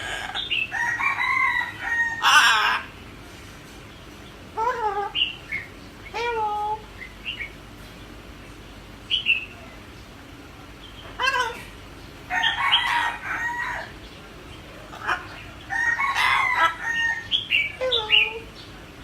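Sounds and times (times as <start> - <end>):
harsh parrot squawk: 1.9 - 2.9.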